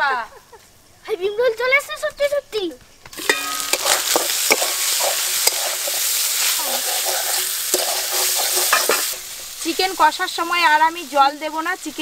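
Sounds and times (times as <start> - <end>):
spatula stirring and scraping: 3.1 - 9.6
chicken sizzling in a pan: 3.1 - 12.0.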